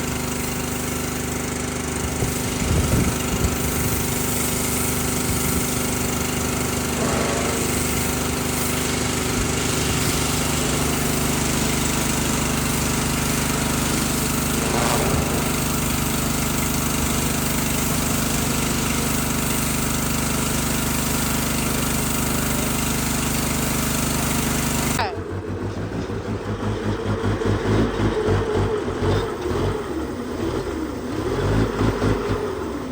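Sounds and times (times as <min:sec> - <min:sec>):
water spray hissing: 0:00.0 - 0:23.7
pressure washer engine running: 0:00.0 - 0:25.5.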